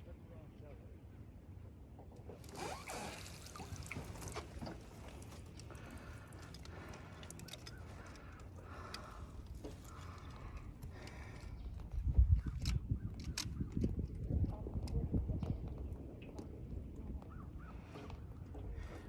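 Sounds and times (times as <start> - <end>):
water sloshing against boat: 2.2 - 11.6.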